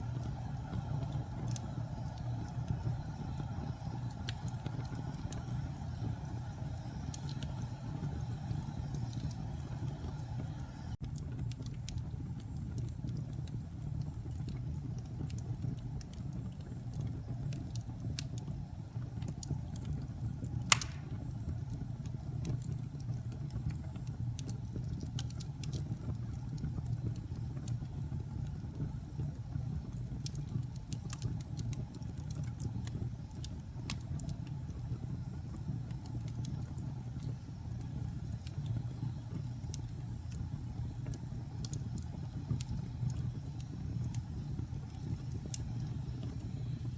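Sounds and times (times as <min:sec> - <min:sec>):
wood fire crackling: 0:00.0 - 0:46.9
sharp pop from fire: 0:20.6 - 0:21.3.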